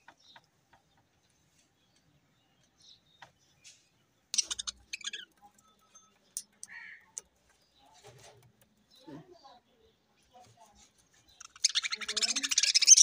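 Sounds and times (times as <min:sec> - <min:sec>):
budgerigars chirping: 0:04.3 - 0:05.4, 0:11.3 - 0:13.0.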